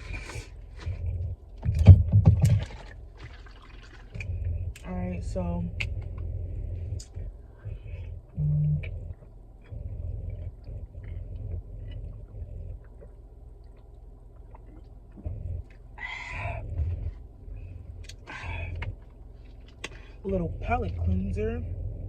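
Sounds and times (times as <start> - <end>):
low thumps: 0.0 - 3.4, 14.5 - 19.1
chewing food: 0.0 - 4.9, 5.7 - 20.2
brief low hum: 0.0 - 22.0.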